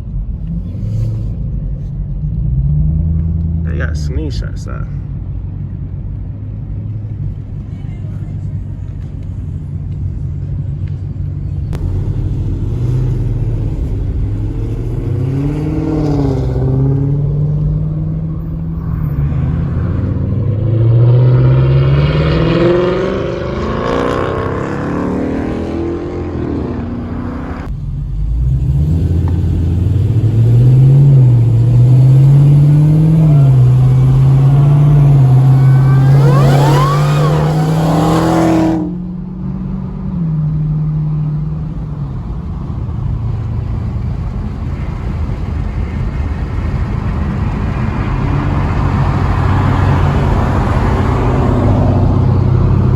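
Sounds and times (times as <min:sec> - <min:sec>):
rising whine: 0:10.8 - 0:39.1
car engine revving: 0:10.8 - 0:52.9.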